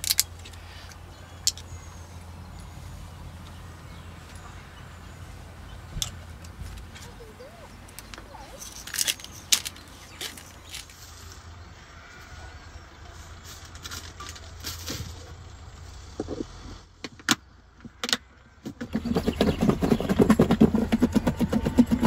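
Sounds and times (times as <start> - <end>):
utensils clicking and knocking: 7.9 - 11.0
fast loud rattling: 18.8 - 22.0.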